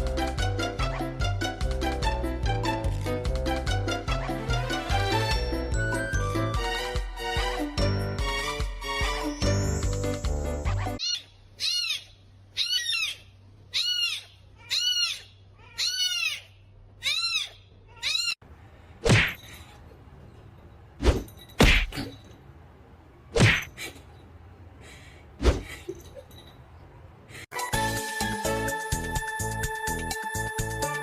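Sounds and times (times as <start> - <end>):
cat meowing: 11.0 - 18.4.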